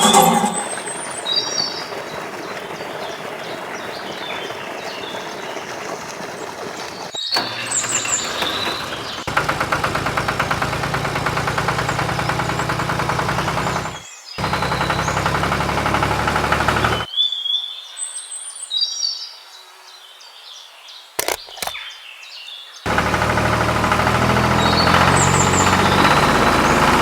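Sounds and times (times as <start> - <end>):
small motor pulsing: 0.0 - 1.9, 7.4 - 17.1, 22.9 - 27.0
birds chirping: 0.0 - 17.1, 22.9 - 27.0.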